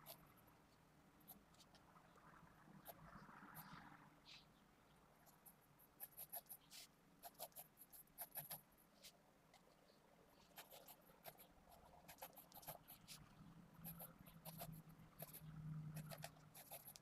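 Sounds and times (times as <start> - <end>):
pencil scratching on paper: 5.3 - 9.2, 10.4 - 13.2, 13.8 - 17.0.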